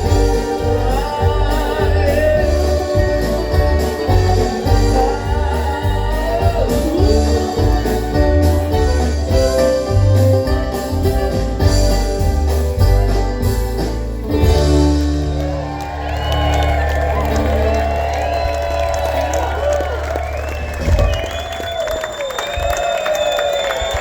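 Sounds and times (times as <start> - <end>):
person singing: 0.0 - 11.6
thumping bass and drums: 0.0 - 15.4
bluegrass band music: 0.0 - 21.4.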